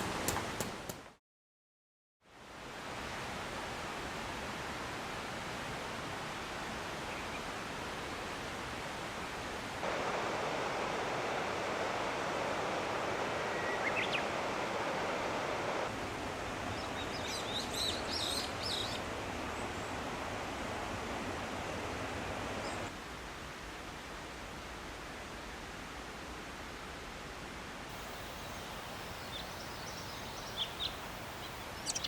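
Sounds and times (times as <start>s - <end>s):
mountain stream rushing: 2.4s - 32.0s
bird chirping: 13.5s - 14.3s, 28.0s - 32.0s.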